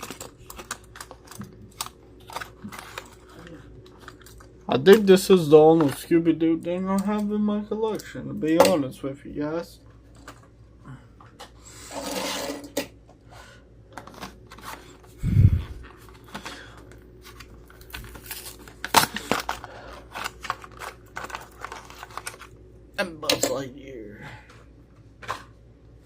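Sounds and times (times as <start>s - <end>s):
packaging rustling tear: 0.0s - 4.6s, 17.2s - 22.6s.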